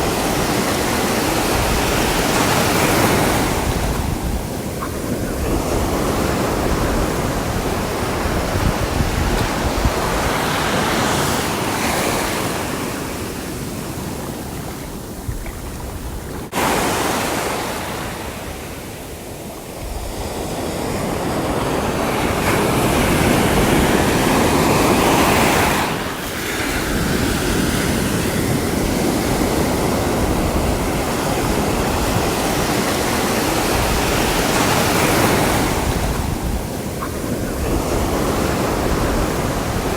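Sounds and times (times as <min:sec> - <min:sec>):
sea waves breaking on shore: 0:00.0 - 0:39.9
wind buffeting microphone: 0:00.0 - 0:39.9.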